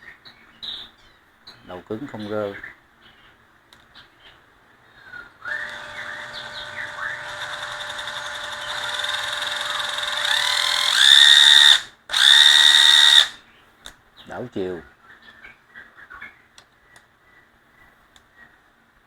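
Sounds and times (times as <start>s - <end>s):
drill motor whine: 5.5s - 13.4s.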